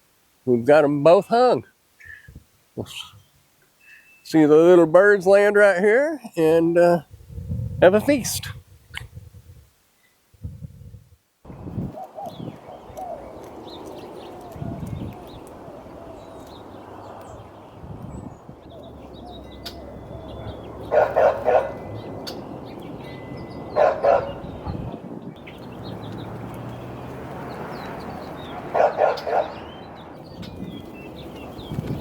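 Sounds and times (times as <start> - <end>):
faint bird chirps: 2.0 - 4.4, 12.0 - 23.6
dog barking: 20.9 - 21.8, 23.7 - 24.9, 28.6 - 29.6.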